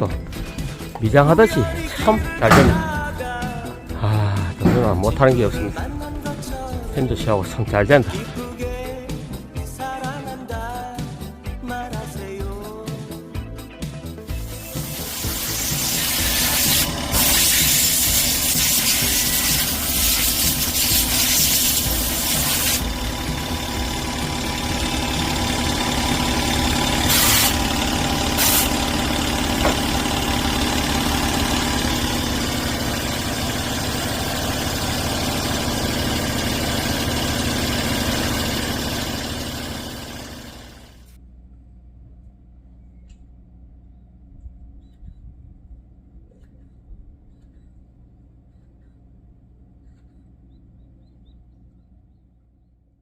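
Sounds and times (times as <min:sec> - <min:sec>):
engine running: 0:00.0 - 0:11.6, 0:12.2 - 0:42.0.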